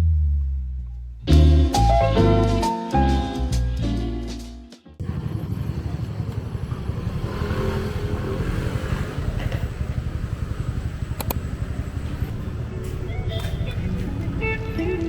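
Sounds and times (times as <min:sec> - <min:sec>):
vehicle engine running: 0:05.0 - 0:15.0
sharp clicks: 0:11.1 - 0:11.4.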